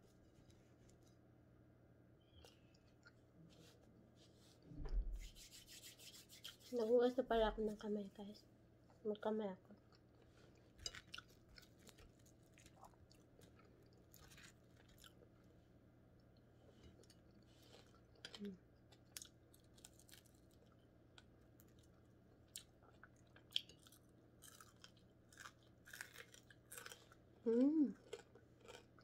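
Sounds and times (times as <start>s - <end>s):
low steady hum: 0.0s - 29.0s
crunching and chewing: 9.8s - 29.0s.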